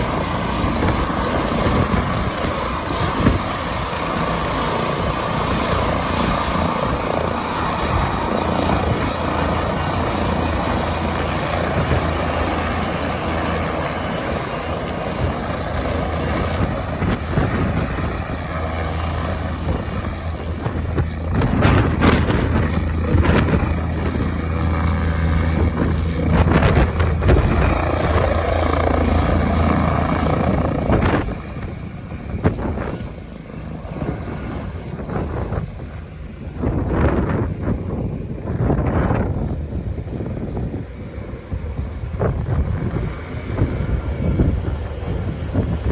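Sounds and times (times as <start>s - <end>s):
helicopter engines whining: 0.0s - 45.9s
helicopter rotor noise: 0.0s - 45.9s.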